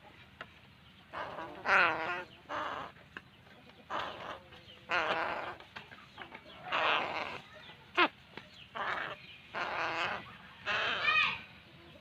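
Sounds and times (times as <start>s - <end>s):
crow chick raspy begging calls: 1.1s - 3.0s, 3.8s - 11.4s.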